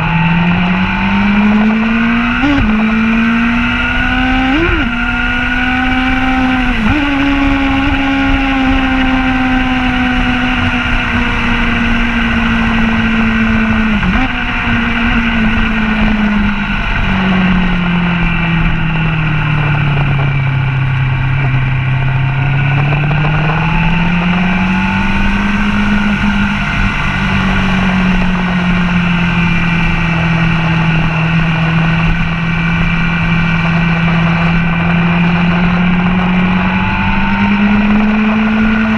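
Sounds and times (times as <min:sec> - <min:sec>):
motorcycle engine: 0:00.0 - 0:38.9
wind rushing over microphone: 0:00.0 - 0:38.9.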